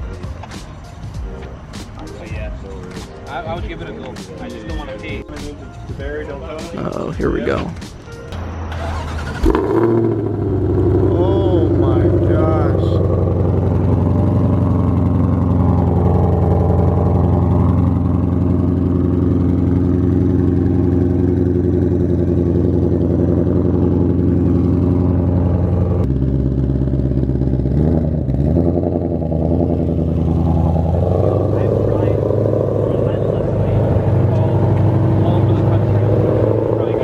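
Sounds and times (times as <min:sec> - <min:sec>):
car engine running: 0:06.0 - 0:37.0.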